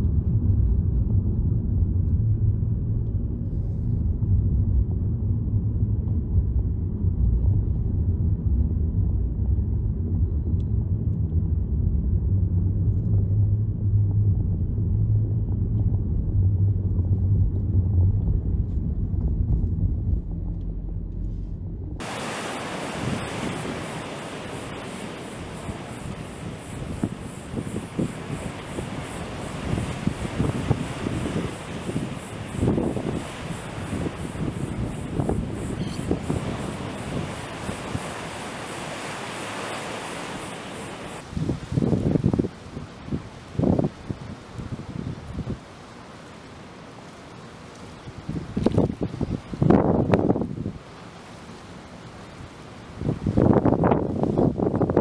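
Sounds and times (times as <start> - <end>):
wind buffeting microphone: 0.0 - 45.9, 48.0 - 50.9, 52.4 - 55.0
water: 0.0 - 55.0
wind hiss: 21.3 - 55.0.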